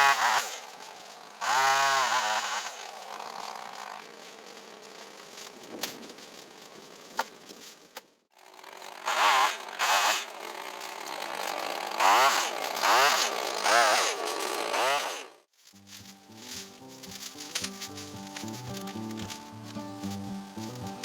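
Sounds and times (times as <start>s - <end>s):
chainsaw engine revving: 0.0s - 5.2s, 8.4s - 15.5s.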